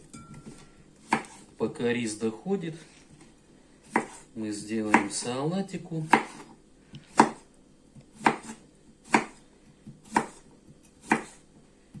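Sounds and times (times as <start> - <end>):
knife chopping on cutting board: 1.0 - 1.5, 3.8 - 4.3, 4.9 - 5.2, 6.0 - 12.0.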